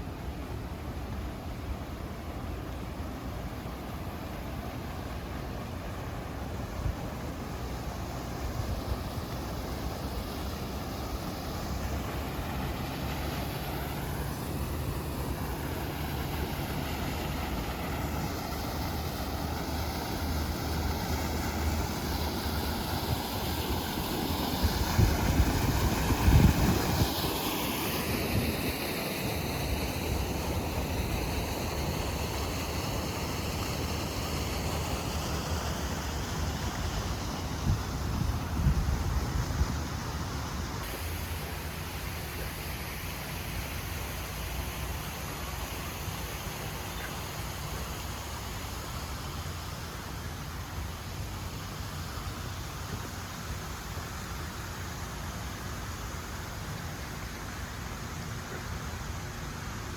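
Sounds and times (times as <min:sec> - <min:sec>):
wind buffeting microphone: 0:24.5 - 0:27.3, 0:37.2 - 0:40.2.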